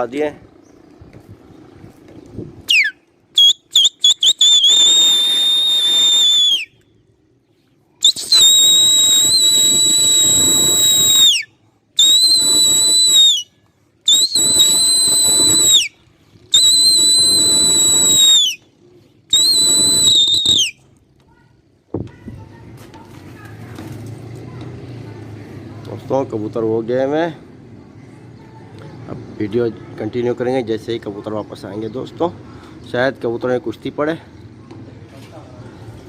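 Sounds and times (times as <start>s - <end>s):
loud whistle blasts: 2.7s - 6.8s, 8.0s - 13.5s, 14.1s - 15.9s, 16.5s - 18.6s, 19.3s - 20.8s.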